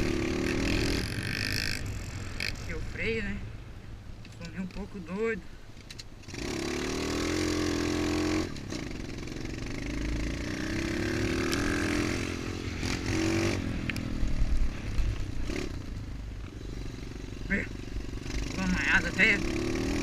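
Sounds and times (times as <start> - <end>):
dirt bike engine revving: 0.0 - 2.8, 6.2 - 15.9, 16.6 - 20.0.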